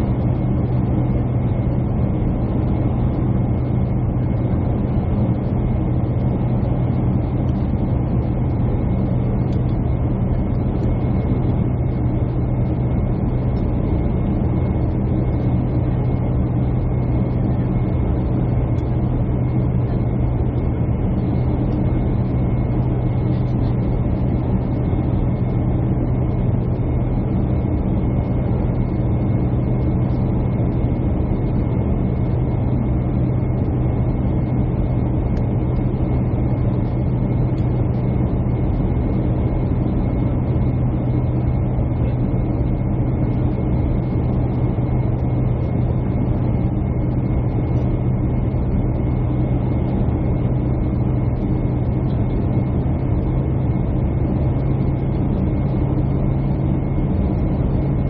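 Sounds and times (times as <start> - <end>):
airliner cabin engine hum: 0.0 - 58.0.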